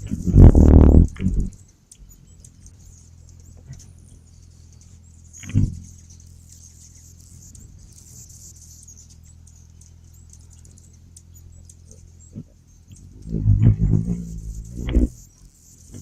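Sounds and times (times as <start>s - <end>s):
hummingbirds chipping and twittering: 0.0s - 16.0s
steady low hum: 0.0s - 16.0s.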